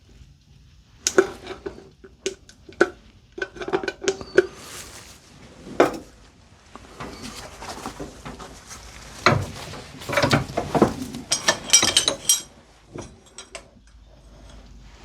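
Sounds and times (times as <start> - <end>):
steel tools clanking together: 2.7 - 5.1, 5.7 - 6.1, 6.9 - 14.7.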